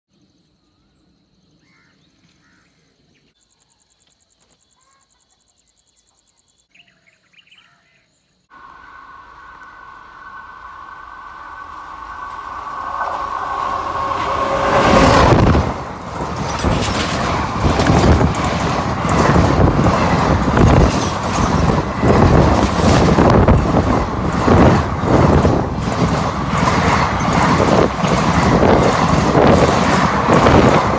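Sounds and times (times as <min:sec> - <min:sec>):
two-tone train horn: 0:08.5 - 0:15.6
locomotive rushing past: 0:08.5 - 0:30.9
wheels clattering over rail joints: 0:10.3 - 0:30.9.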